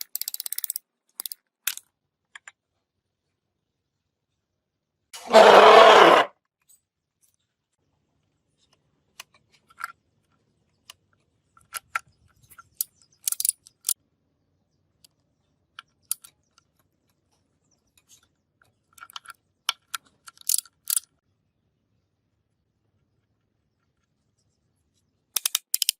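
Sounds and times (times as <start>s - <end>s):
metallic clinks and taps: 25.4s - 25.9s.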